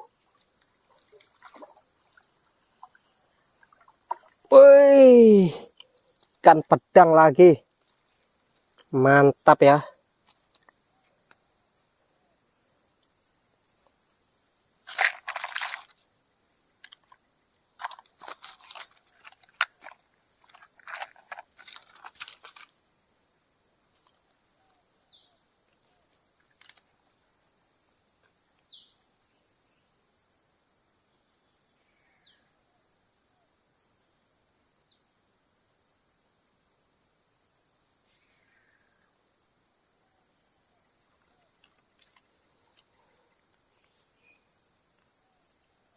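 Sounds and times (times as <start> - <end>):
insect chorus drone: 0.0 - 45.9
short rustles and clicks: 14.9 - 16.0, 17.8 - 22.7.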